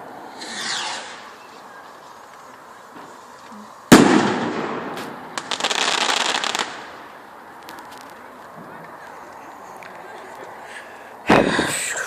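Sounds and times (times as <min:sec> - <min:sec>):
firework crackle: 0:00.0 - 0:12.0
firework bang: 0:00.3 - 0:01.4, 0:03.9 - 0:07.0.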